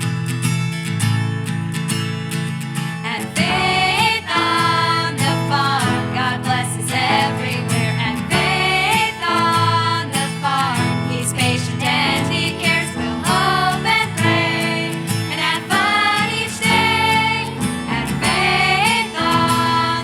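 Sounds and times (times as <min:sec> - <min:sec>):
strummed acoustic guitar: 0:00.0 - 0:20.0
person singing: 0:03.1 - 0:20.0.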